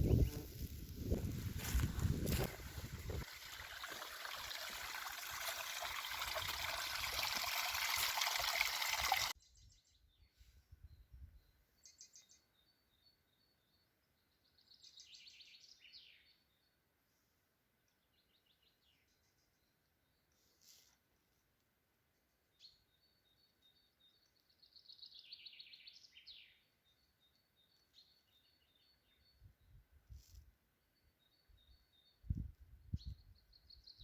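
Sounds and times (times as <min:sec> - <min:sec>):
birds singing trills and chirps: 0:09.3 - 0:16.7.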